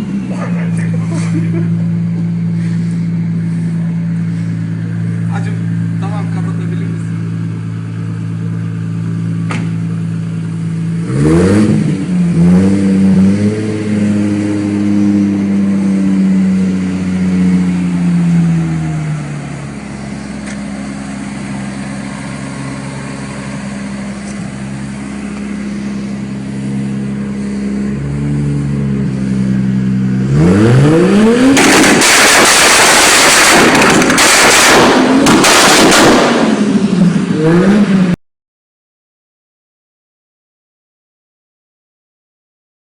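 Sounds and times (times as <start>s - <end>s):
engine idling and revving: 0.0s - 38.2s
exhaust popping and crackling: 31.3s - 37.4s.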